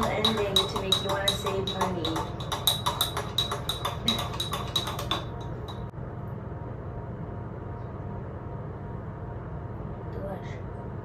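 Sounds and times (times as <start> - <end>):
spoon clinking against a mug: 0.0 - 5.9
steady low hum: 0.0 - 11.0.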